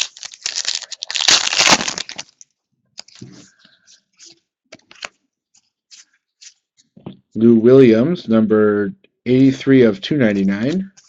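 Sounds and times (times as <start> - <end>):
wrapper crinkling: 0.0 - 3.2
cards being handled: 3.0 - 6.6.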